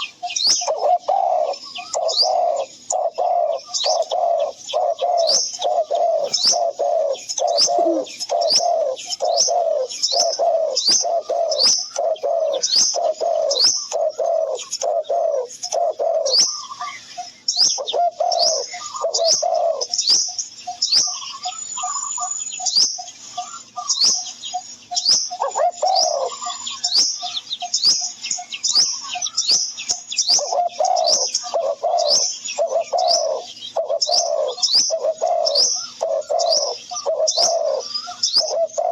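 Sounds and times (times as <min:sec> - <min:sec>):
birds calling and chirping: 0:00.0 - 0:38.9.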